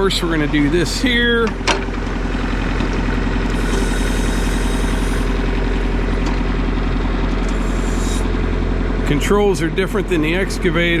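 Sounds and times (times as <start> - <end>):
diesel tractor engine idling: 0.0 - 11.0.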